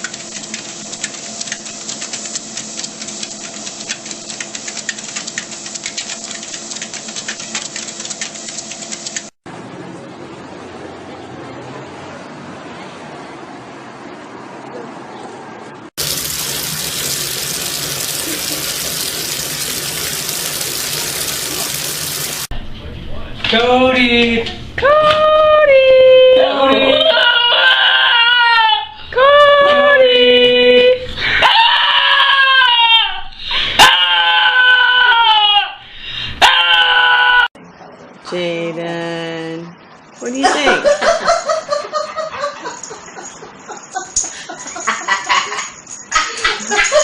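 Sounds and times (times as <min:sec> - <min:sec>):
water running with hiss: 0:16.0 - 0:22.5
dog howling: 0:26.4 - 0:29.8, 0:31.4 - 0:35.8, 0:36.4 - 0:37.6.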